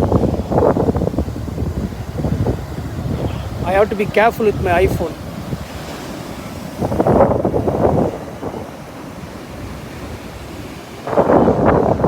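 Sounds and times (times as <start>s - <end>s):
surf washing onto beach: 0.0s - 12.0s
wind buffeting microphone: 0.0s - 12.0s.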